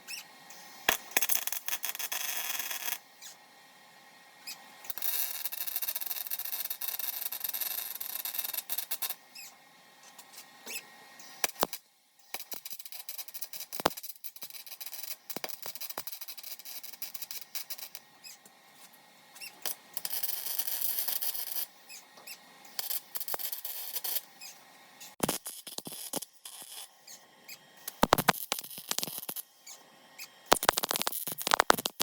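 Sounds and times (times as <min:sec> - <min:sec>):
welder sputtering and crackling: 0:00.9 - 0:03.0, 0:04.8 - 0:09.2, 0:11.2 - 0:18.2, 0:19.6 - 0:21.8, 0:22.6 - 0:32.0
sharp clicks and taps: 0:27.9 - 0:29.4, 0:30.5 - 0:32.0.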